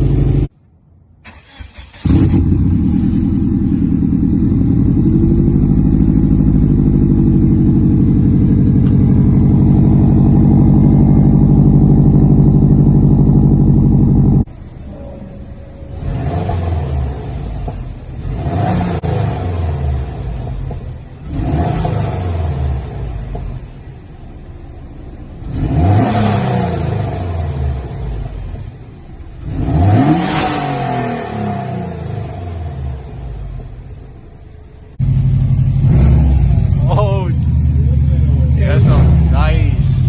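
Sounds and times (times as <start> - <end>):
car engine revving: 1.3 - 34.2, 34.9 - 40.0.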